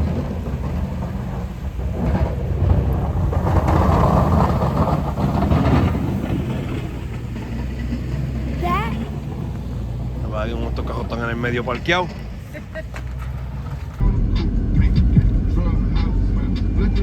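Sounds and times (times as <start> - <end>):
rushing noise: 0.0 - 17.0
truck engine rumbling: 0.0 - 17.0.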